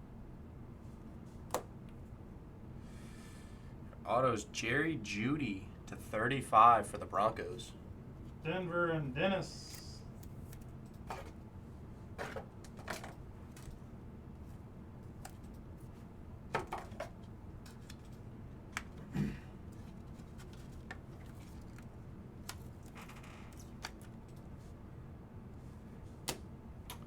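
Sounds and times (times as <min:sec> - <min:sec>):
steady low hum: 0:00.0 - 0:27.0
cards clicking and rustling: 0:09.7 - 0:11.4, 0:12.2 - 0:13.8, 0:15.1 - 0:15.6, 0:16.6 - 0:18.2, 0:19.8 - 0:24.4.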